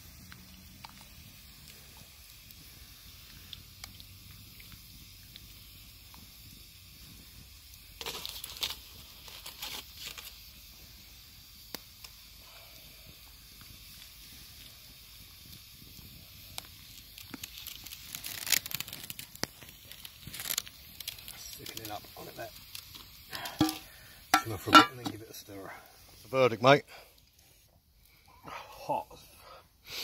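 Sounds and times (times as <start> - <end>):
campfire crackling: 0.0 - 30.0
rustling and handling noise: 8.0 - 10.4, 17.0 - 25.4.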